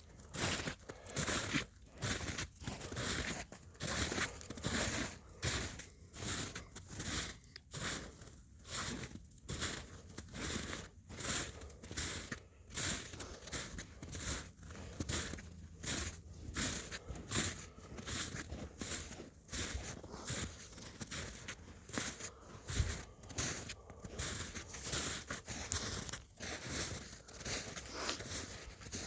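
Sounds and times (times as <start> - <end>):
footsteps crunching through snow: 0.0 - 29.0.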